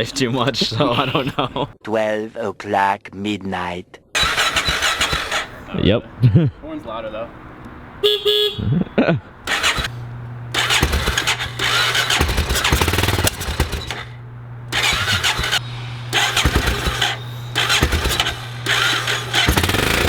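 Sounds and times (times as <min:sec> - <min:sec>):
scooter engine revving: 0:00.0 - 0:01.7, 0:04.2 - 0:20.0.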